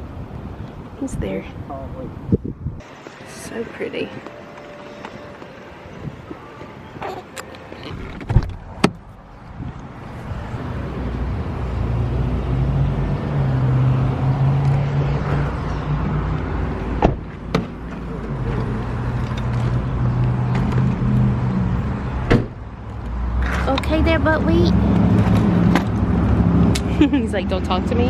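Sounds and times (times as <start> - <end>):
road noise: 0.0 - 28.0
car engine hum: 7.0 - 28.0.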